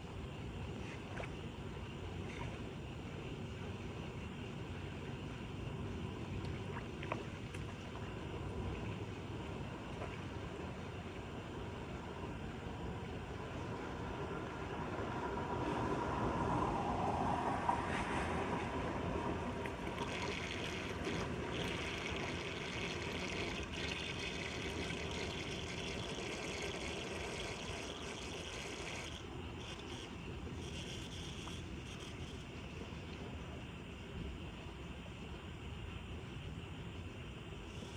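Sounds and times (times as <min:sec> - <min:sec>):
water rushing into storm drain: 0:19.6 - 0:29.2.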